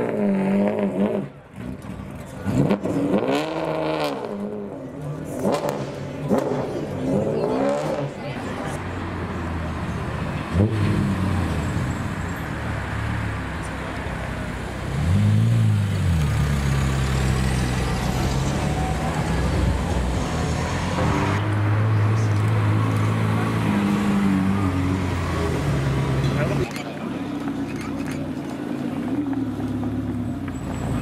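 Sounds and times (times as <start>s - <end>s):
engine revving: 2.5s - 4.6s.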